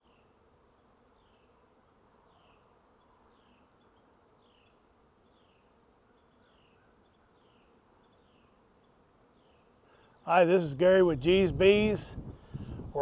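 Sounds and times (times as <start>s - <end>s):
honeybees buzzing: 4.2s - 13.0s.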